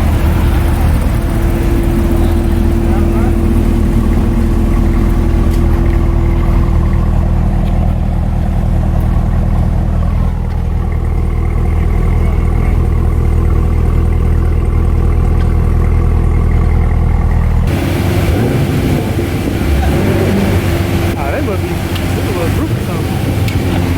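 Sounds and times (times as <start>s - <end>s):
car engine idling: 0.0s - 23.9s.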